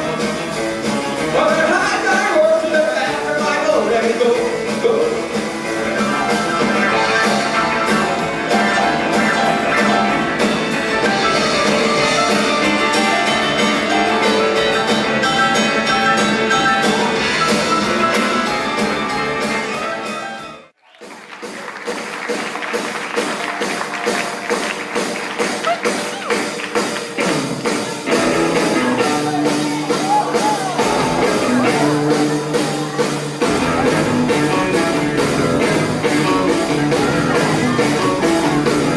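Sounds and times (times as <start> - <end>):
electric guitar: 0.0 - 20.3, 24.0 - 38.9
drum kit: 0.0 - 20.4, 21.0 - 38.9.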